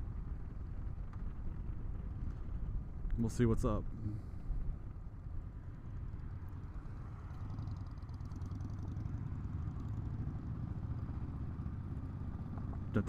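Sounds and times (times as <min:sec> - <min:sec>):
motorcycle engine droning: 0:03.8 - 0:13.0.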